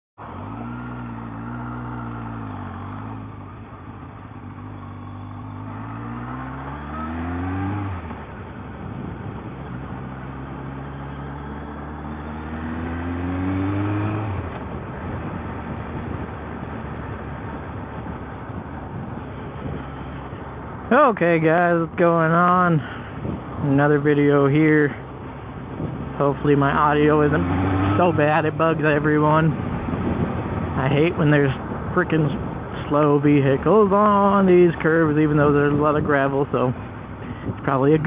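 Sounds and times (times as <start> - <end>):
motorcycle engine accelerating: 0.2 - 21.0, 22.9 - 32.6
wind noise on microphone: 7.1 - 10.3, 13.6 - 20.9, 22.8 - 23.8, 25.5 - 26.7, 27.3 - 33.1, 35.0 - 38.0.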